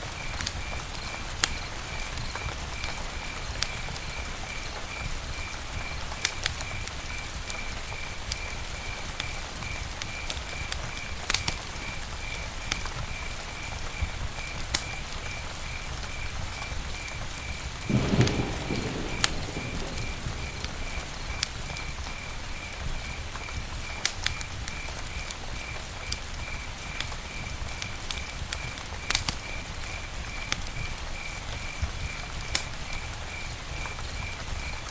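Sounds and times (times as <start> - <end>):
campfire crackling: 0.0 - 34.9.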